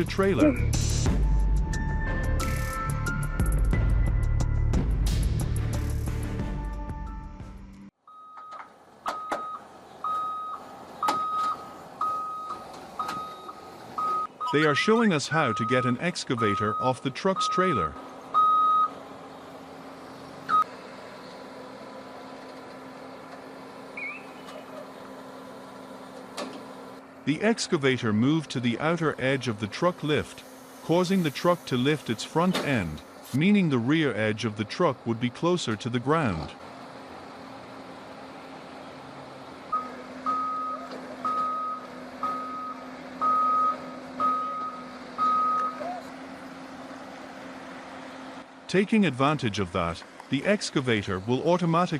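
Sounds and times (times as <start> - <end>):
reversing alarm beep: 8.1 - 14.8, 15.5 - 17.7, 18.4 - 18.9, 39.7 - 46.0
engine humming: 8.6 - 51.9.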